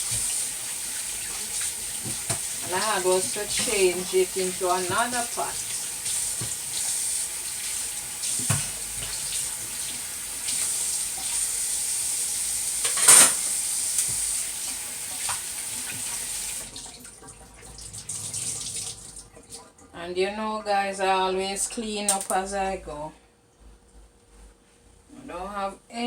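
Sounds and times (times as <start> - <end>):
tap running into sink: 0.0 - 11.4, 12.7 - 16.9.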